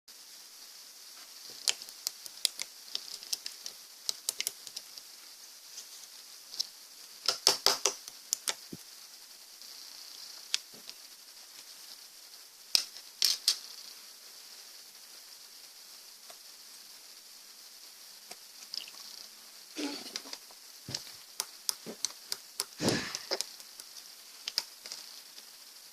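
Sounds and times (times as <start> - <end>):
slime clicking and popping: 7.2 - 8.7.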